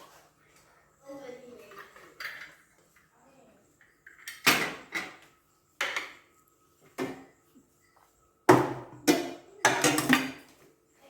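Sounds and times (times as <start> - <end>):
glass jars clinking: 9.0 - 10.4.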